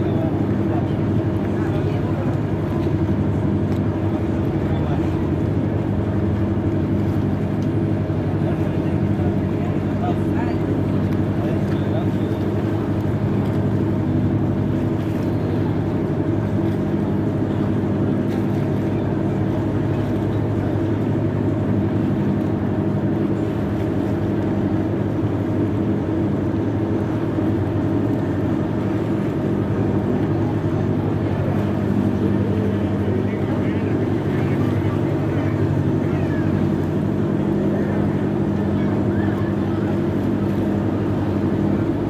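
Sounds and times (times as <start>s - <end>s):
boat engine running: 0.0s - 42.0s.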